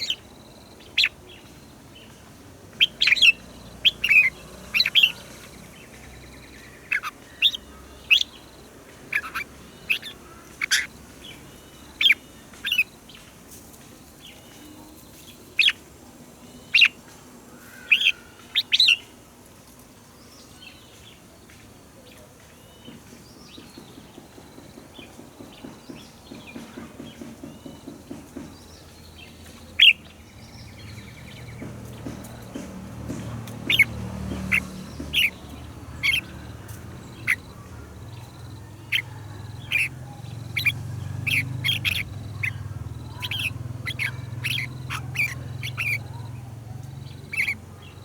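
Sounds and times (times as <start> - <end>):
bird whistling: 33.6 - 36.3, 38.2 - 46.4, 47.2 - 47.6.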